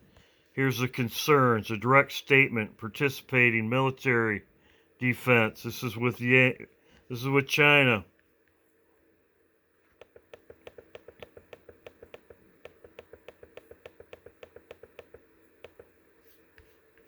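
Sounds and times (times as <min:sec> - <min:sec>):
mouse scroll wheel clicking: 0:10.0 - 0:15.9.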